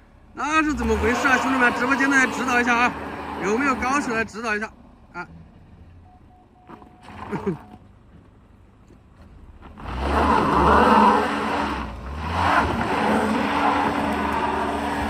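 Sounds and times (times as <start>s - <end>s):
car engine revving hard: 0.6s - 4.2s, 9.8s - 15.0s
tyres spinning on dirt: 6.6s - 15.0s.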